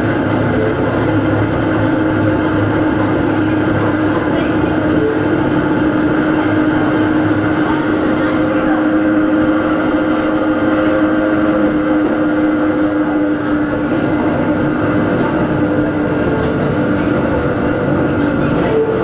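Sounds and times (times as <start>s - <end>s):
wheels rumbling on track: 0.0s - 19.0s.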